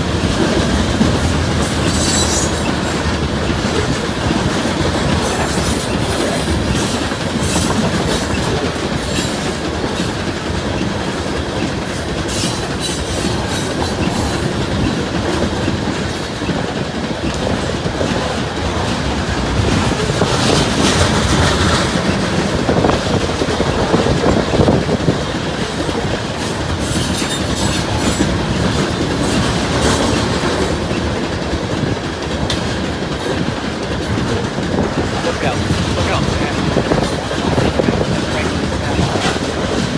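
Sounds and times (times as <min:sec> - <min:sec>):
train wheels clacking on rails: 0:00.0 - 0:39.9
high wheel squeal: 0:01.6 - 0:03.1.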